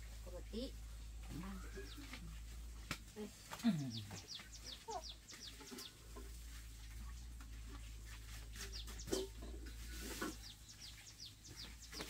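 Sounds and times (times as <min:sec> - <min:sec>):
low steady rumble: 0:00.0 - 0:03.4
birds chirping: 0:00.0 - 0:12.0.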